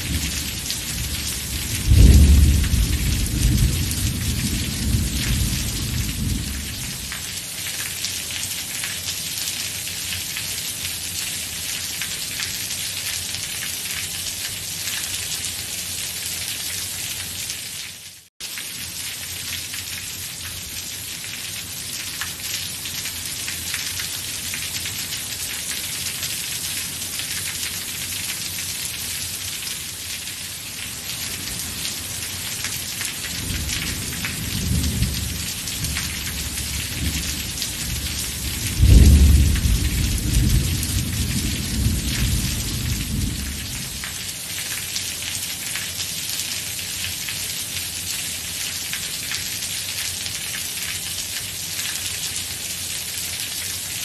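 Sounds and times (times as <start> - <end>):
heavy rain falling: 0.0 - 54.0
thunder rolling and clapping: 1.8 - 5.4.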